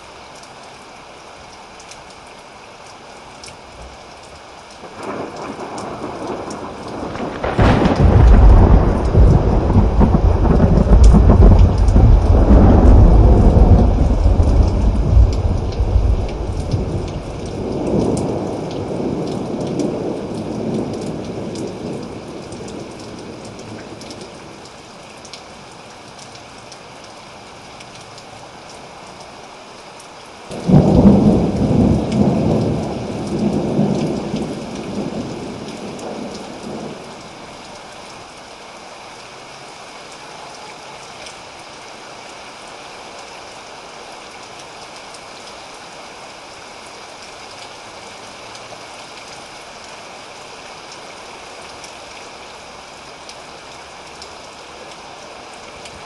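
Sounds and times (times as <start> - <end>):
steady rain: 0.0 - 56.0
thunder rumbling: 4.9 - 22.9, 30.5 - 37.1
loud thunderclap: 5.4 - 17.3, 30.5 - 35.2.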